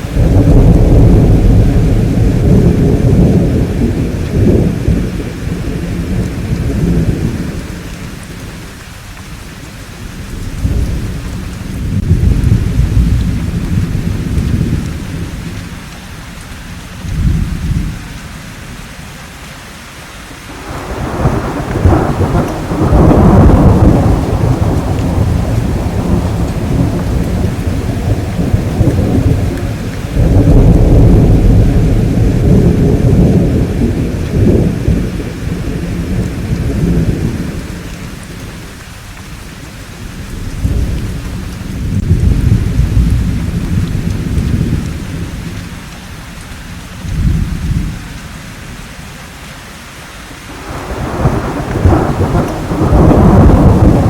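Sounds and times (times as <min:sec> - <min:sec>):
rolling thunder: 0:00.0 - 0:08.6, 0:10.0 - 0:15.8, 0:20.5 - 0:38.8, 0:39.9 - 0:46.2, 0:47.0 - 0:48.8, 0:50.5 - 0:54.0
steady rain: 0:00.0 - 0:54.0.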